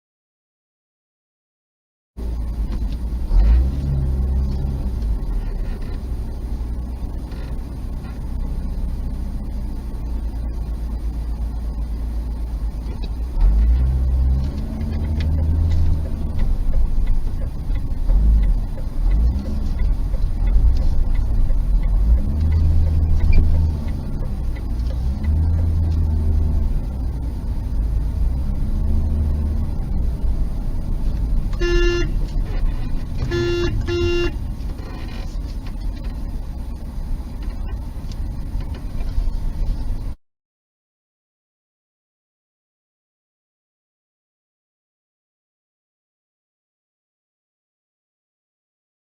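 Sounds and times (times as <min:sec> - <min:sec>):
car engine rumble: 0:02.2 - 0:40.2
road noise: 0:02.2 - 0:40.2.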